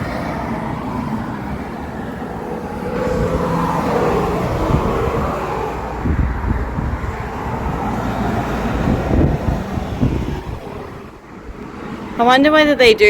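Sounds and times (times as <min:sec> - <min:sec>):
road and engine rumble: 0:00.0 - 0:13.0
wind noise: 0:00.0 - 0:13.0.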